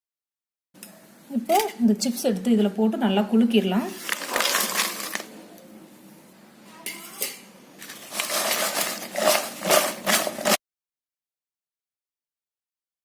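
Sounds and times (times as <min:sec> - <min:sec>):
potato chips rattling in a bowl: 0:03.9 - 0:05.4, 0:07.8 - 0:10.6.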